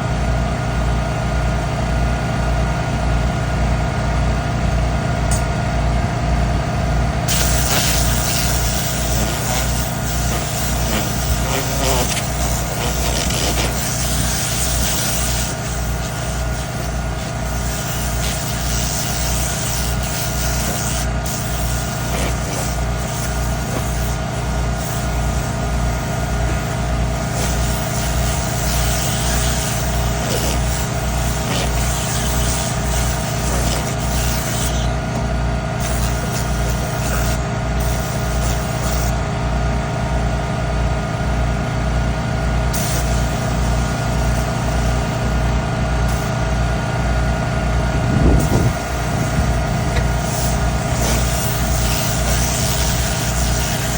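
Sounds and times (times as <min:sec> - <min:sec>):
air compressor running: 0:00.0 - 0:53.9
air hissing from blow nozzle: 0:07.3 - 0:39.1, 0:42.7 - 0:47.0, 0:47.7 - 0:53.9.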